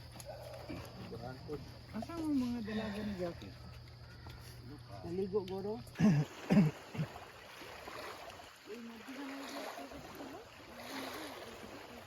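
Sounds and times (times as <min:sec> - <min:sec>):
voices: 0:08.5 - 0:12.0.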